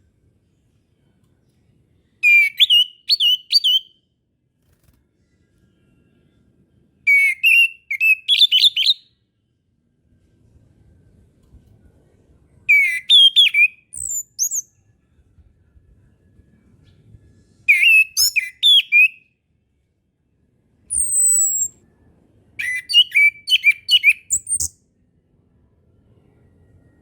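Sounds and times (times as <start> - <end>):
thrush whistling song: 2.2 - 4.0, 7.1 - 9.1, 12.7 - 14.8, 17.7 - 19.2, 20.9 - 21.8, 22.6 - 24.8.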